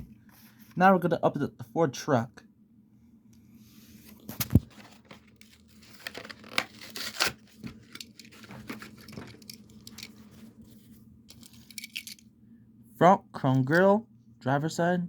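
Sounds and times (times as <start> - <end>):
plastic blister crinkling: 4.2 - 10.6
cardboard tearing: 4.4 - 9.0.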